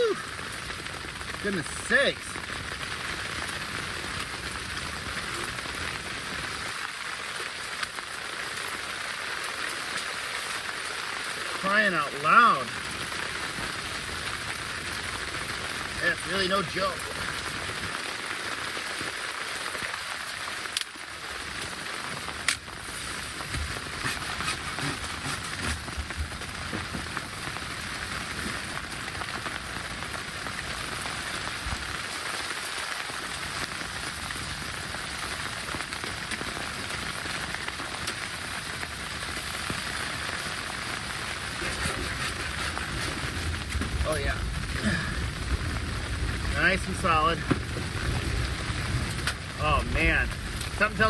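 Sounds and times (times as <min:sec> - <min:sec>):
hiss of wind-driven snow: 0:00.0 - 0:06.8, 0:21.3 - 0:29.2, 0:30.4 - 0:51.0.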